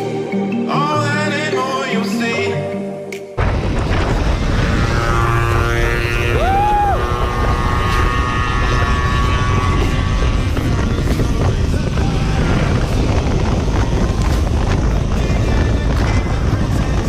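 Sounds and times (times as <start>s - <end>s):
rising and falling tone: 0.0s - 15.0s
motorcycle engine: 3.4s - 17.0s
wind rumble on microphone: 3.4s - 17.0s.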